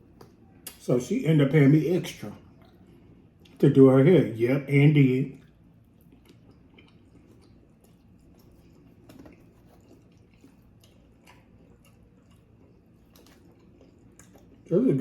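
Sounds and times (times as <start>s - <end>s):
close-up chewing: 2.4s - 3.7s, 5.3s - 15.0s.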